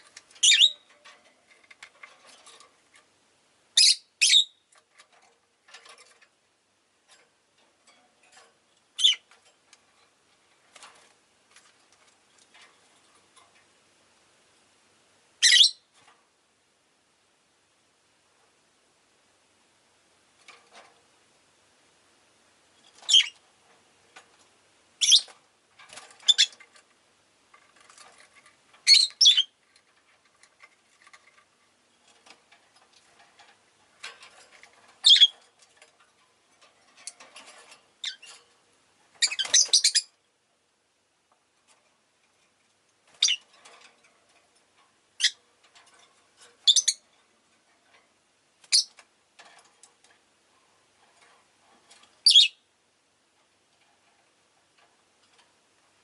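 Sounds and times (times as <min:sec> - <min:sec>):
soft bird chatter: 0:00.0 - 0:02.1, 0:09.0 - 0:09.4, 0:25.0 - 0:25.4, 0:27.8 - 0:31.4, 0:34.7 - 0:35.4, 0:51.9 - 0:52.7
lovebirds shrill calls: 0:00.4 - 0:00.9, 0:03.8 - 0:04.6, 0:09.0 - 0:09.2, 0:15.4 - 0:15.8, 0:23.1 - 0:23.4, 0:25.0 - 0:25.3, 0:26.3 - 0:26.6, 0:28.8 - 0:29.5, 0:35.0 - 0:35.3, 0:39.2 - 0:40.1, 0:46.7 - 0:47.0, 0:52.2 - 0:52.6.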